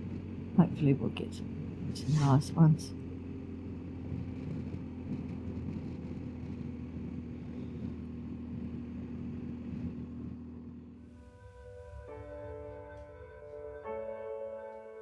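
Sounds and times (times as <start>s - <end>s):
motorcycle engine running: 0.0s - 11.2s
wind and road noise: 0.0s - 14.4s
piano music: 11.0s - 15.0s.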